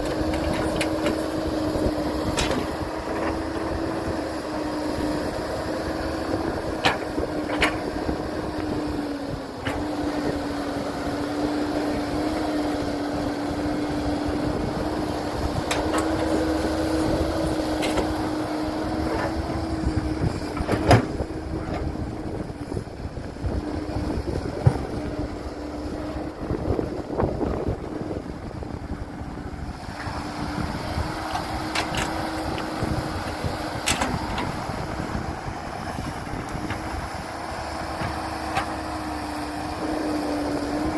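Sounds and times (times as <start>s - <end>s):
diesel engine droning: 0.0s - 40.9s
machinery knocks and clanks: 24.6s - 25.0s, 33.8s - 34.7s.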